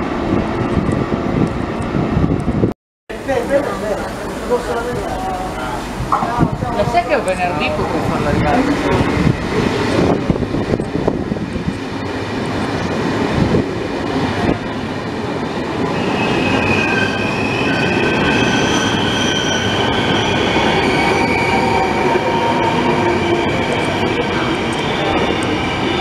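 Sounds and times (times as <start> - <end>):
train rumbling past: 0.0 - 26.0
high squealing tones: 15.9 - 26.0.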